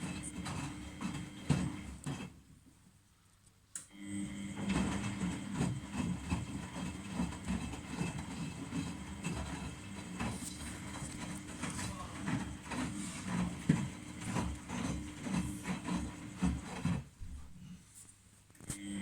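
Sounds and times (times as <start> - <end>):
washing machine clatter: 0.0 - 2.3, 4.5 - 17.1
washing machine running: 0.0 - 2.4, 4.0 - 17.5, 18.8 - 19.0.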